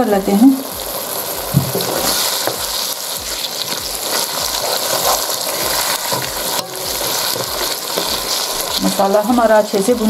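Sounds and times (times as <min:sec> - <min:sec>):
frying hiss: 0:00.0 - 0:10.0
wooden spoon scraping a pan: 0:01.6 - 0:09.9.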